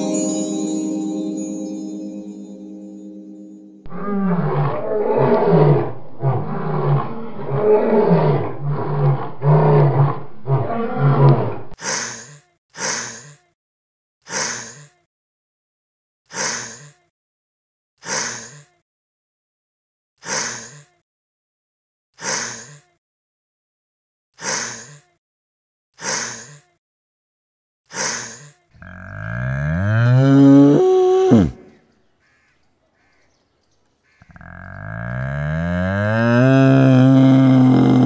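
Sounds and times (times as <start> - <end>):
cow mooing: 3.9 - 11.8, 28.8 - 31.7, 34.3 - 38.0.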